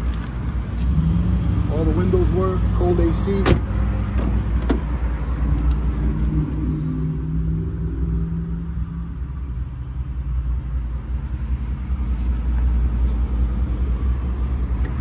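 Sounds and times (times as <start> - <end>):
car engine idling: 9.0 - 15.0.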